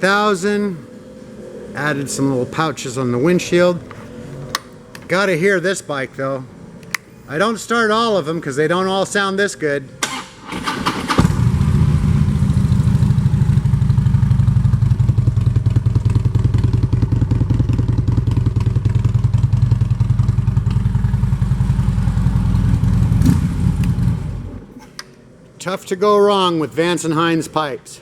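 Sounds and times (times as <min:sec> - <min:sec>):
engine shutting off: 0:10.0 - 0:24.8
motorcycle engine idling: 0:10.9 - 0:24.7.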